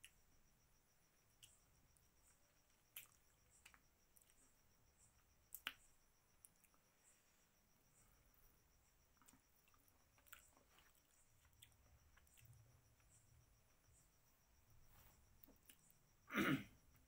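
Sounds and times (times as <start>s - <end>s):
faint chewing: 2.3s - 4.5s, 5.4s - 5.8s, 9.0s - 13.2s, 15.3s - 16.0s.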